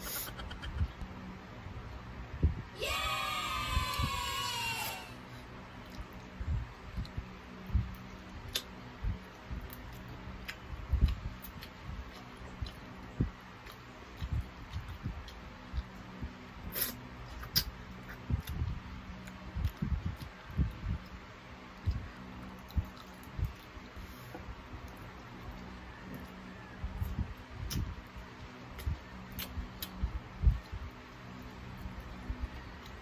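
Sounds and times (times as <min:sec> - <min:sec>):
high-pitched cry-like sound: 0:02.8 - 0:05.2
crunching and chewing: 0:07.8 - 0:33.0.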